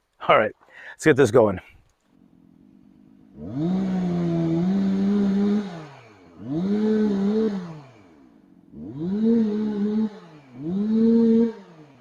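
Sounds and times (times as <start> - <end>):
chainsaw revving: 2.2 - 12.0.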